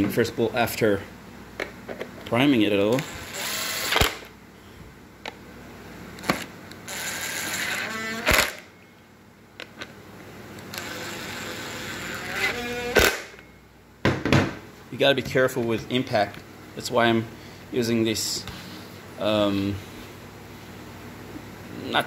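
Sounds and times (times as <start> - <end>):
impact driver whirring and hammering: 2.9 - 4.3, 6.2 - 8.7, 10.7 - 13.4.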